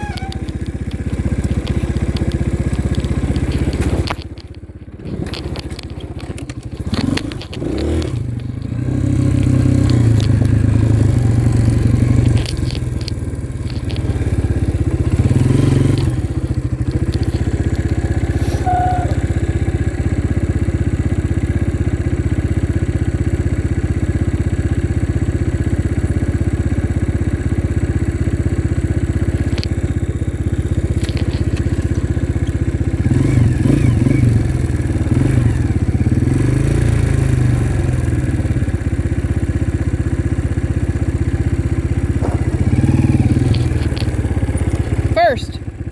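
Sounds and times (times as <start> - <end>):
dirt bike engine revving: 0.0 - 4.2, 4.9 - 19.9, 30.8 - 38.4, 41.2 - 45.6.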